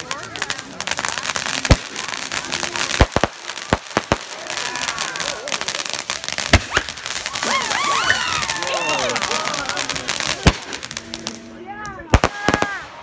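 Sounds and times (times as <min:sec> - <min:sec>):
firework bangs: 0:00.0 - 0:11.5, 0:12.1 - 0:13.0
firework crackle: 0:00.0 - 0:13.0.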